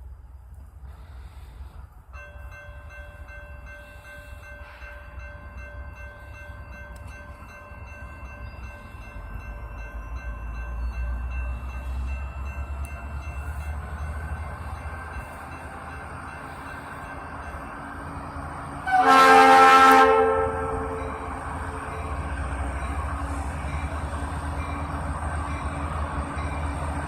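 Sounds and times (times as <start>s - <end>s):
diesel locomotives rumbling: 0.0s - 27.0s
locomotive air horn blast: 18.8s - 21.3s.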